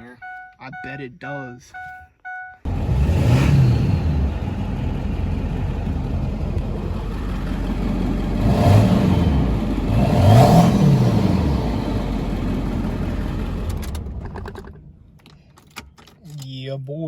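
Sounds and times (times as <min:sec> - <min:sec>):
diesel engine idling and revving: 0:02.3 - 0:15.3.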